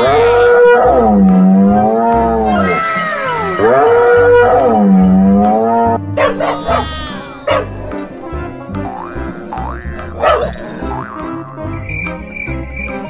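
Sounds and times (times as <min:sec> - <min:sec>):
long drawn-out animal calls: 0:02.1 - 0:05.3, 0:06.2 - 0:08.0.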